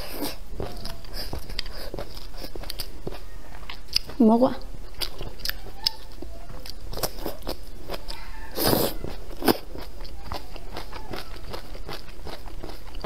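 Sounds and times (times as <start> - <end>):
wet chewing with mouth clicks: 0.0 - 13.0
crunching bite: 4.9 - 13.0.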